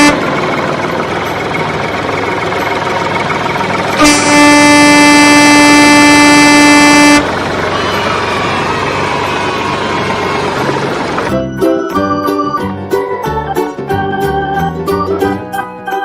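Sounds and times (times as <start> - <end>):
vehicle horn blaring: 0.0 - 0.4, 3.9 - 7.5
vehicle noise rumble: 0.0 - 11.6.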